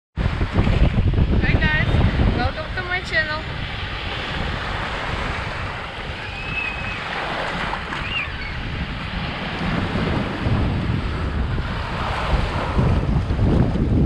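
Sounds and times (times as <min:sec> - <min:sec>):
surf washing on a beach: 0:00.2 - 0:14.0
wind buffeting microphone: 0:00.2 - 0:14.0
faint high whistles: 0:06.2 - 0:07.1, 0:08.0 - 0:08.6.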